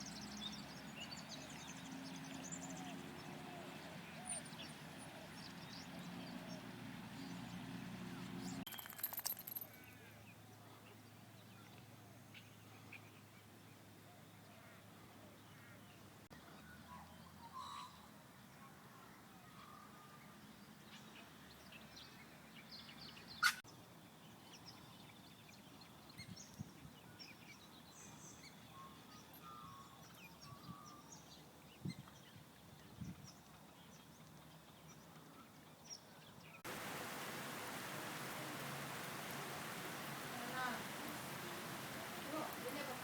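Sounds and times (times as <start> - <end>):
steady hiss: 36.7 - 43.0.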